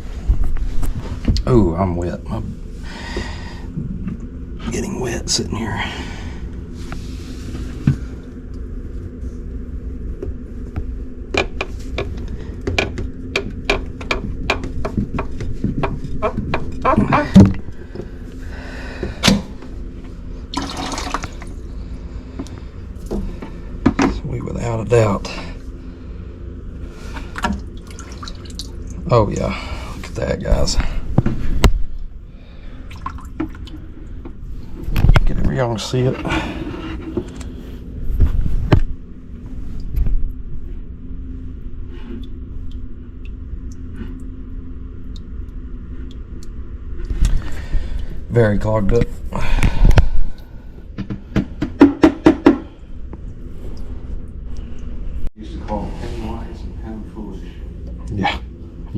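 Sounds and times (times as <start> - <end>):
low motor hum: 0.0 - 58.9
water pouring and splashing: 20.5 - 21.6, 27.2 - 29.0, 32.8 - 33.8.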